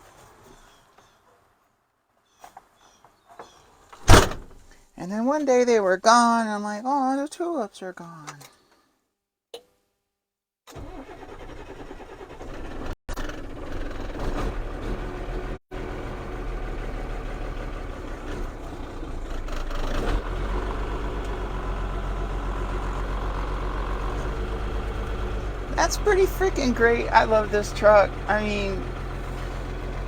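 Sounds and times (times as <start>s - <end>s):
diesel engine cranking and idling: 10.7s - 30.0s.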